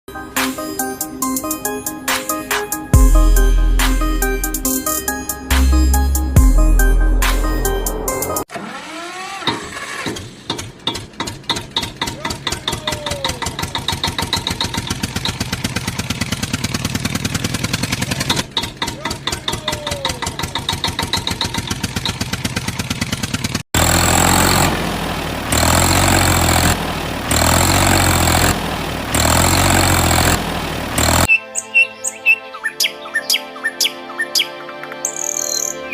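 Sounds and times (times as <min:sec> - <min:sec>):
vehicle engine chugging: 0:10.5 - 0:31.3
pulsing on and off sound: 0:23.8 - 0:31.3.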